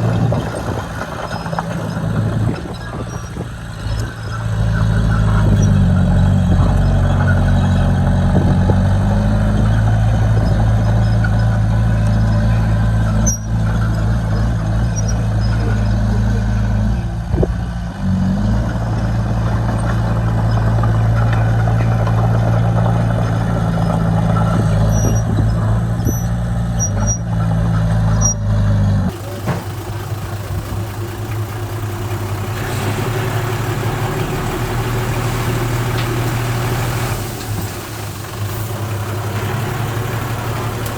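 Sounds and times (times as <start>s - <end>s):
engine idling: 0.0s - 14.8s, 29.1s - 40.9s
diesel engine running under load: 0.0s - 40.9s.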